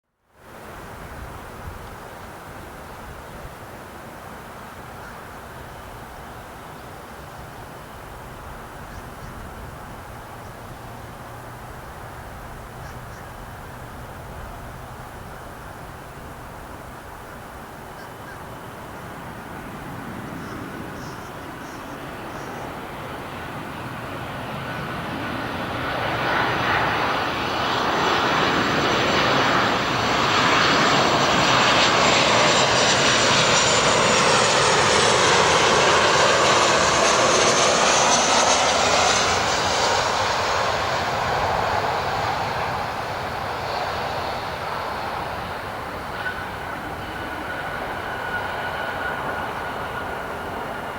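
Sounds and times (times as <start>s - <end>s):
jet airliner landing: 0.5s - 50.9s.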